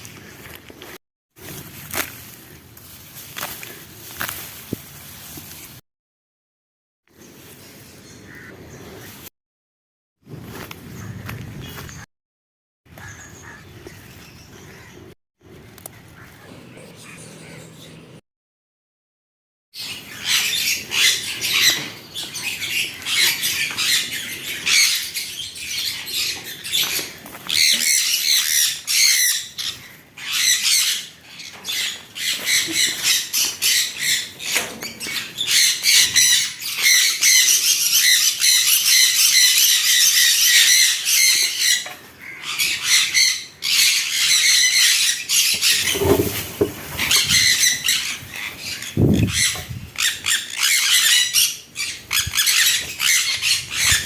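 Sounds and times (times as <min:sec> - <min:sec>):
birds chattering and squawking: 0:07.2 - 0:09.3, 0:10.5 - 0:12.1, 0:12.9 - 0:18.2, 0:19.8 - 0:54.0.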